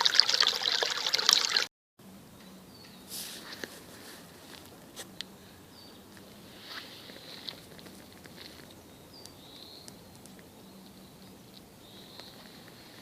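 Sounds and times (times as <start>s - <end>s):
flowing water: 0.0s - 1.7s.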